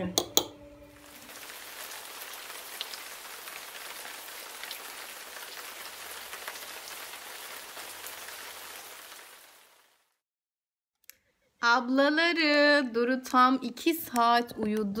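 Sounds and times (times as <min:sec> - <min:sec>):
steady rain falling: 0:01.0 - 0:10.2.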